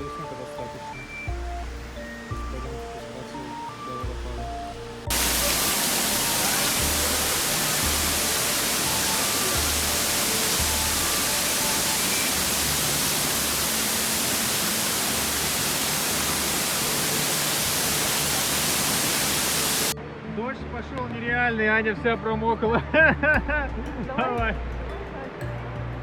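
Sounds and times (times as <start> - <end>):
background music with bass beat: 0.0 - 3.2, 4.0 - 11.4
heavily falling water hissing: 5.1 - 19.9.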